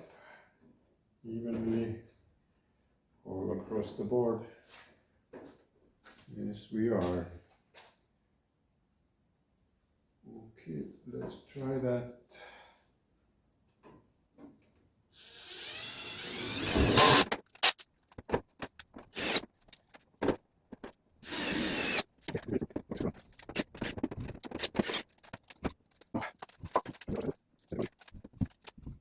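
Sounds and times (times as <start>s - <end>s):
electric drill boring through sheet metal: 15.2s - 17.3s, 19.1s - 19.5s, 21.2s - 22.0s
drill trigger bursts and clicks: 15.2s - 17.9s, 19.0s - 19.7s, 21.2s - 25.8s.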